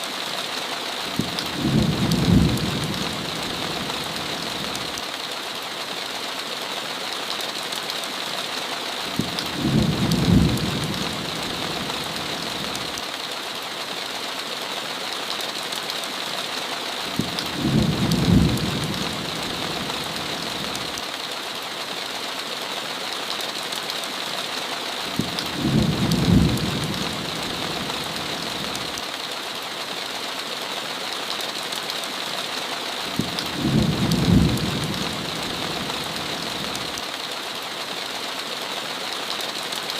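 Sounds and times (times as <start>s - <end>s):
heavy rain: 0.0s - 39.9s
deep rumble of thunder: 1.2s - 4.2s, 9.2s - 12.2s, 17.2s - 20.1s, 25.2s - 28.1s, 33.2s - 36.2s.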